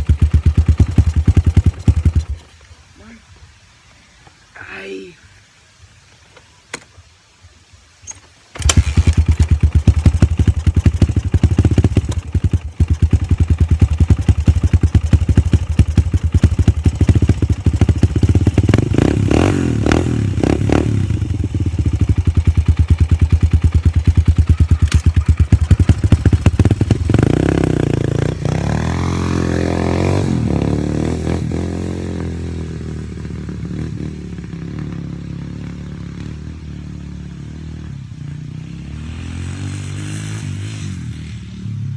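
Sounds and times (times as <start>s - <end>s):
dirt bike engine revving: 0.0s - 2.6s, 8.6s - 41.9s
starter clicks: 24.6s - 26.7s.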